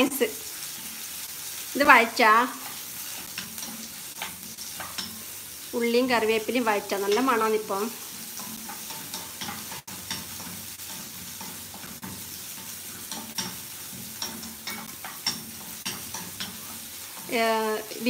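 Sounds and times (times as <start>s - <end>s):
woman speaking: 0.0s - 0.4s, 1.8s - 2.6s, 5.8s - 8.0s, 17.3s - 18.0s
onions sizzling in hot oil: 0.0s - 18.0s
wooden spatula stirring: 2.6s - 5.3s, 6.2s - 17.5s.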